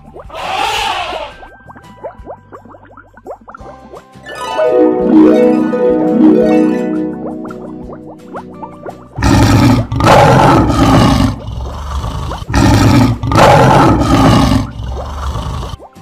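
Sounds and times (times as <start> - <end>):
lion roaring: 9.2 - 15.8.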